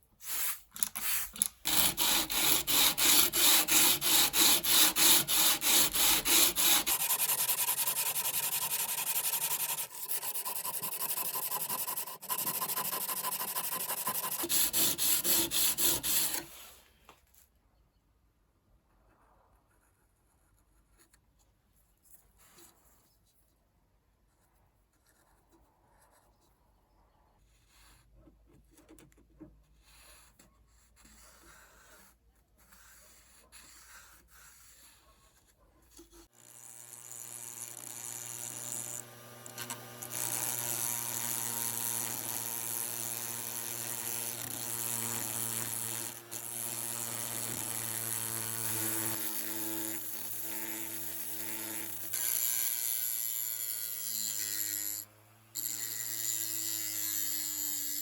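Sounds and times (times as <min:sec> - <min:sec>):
electric power tool buzzing: 0:01.4 - 0:16.6, 0:36.4 - 0:58.0.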